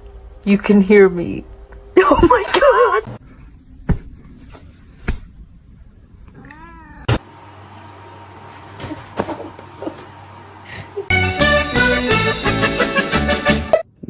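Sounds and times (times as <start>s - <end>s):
cat meowing: 6.3s - 7.2s.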